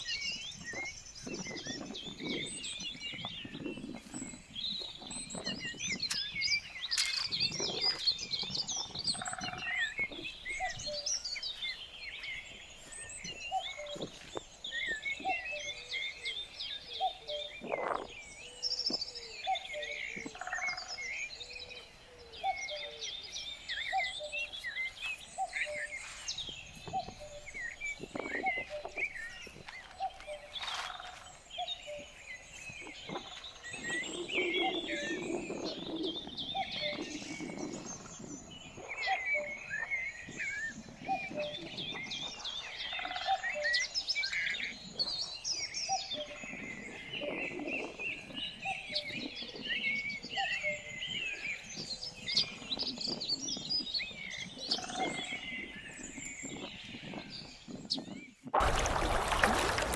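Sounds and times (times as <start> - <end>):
small birds chirping and singing: 0.0 - 59.9.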